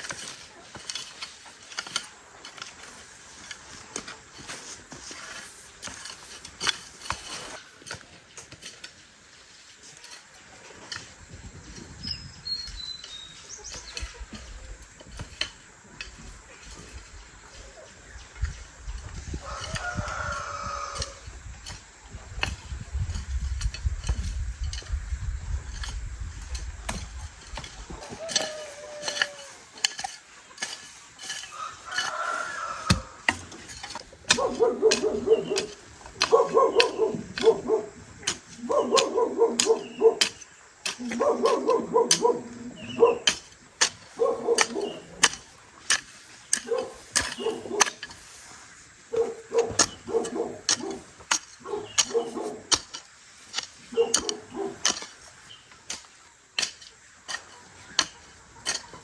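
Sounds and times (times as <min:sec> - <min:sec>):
chickens chirping: 0:27.2 - 0:52.8
animal calls: 0:34.3 - 0:43.4, 0:44.1 - 0:45.4, 0:46.6 - 0:48.0, 0:49.1 - 0:52.8, 0:53.9 - 0:55.0.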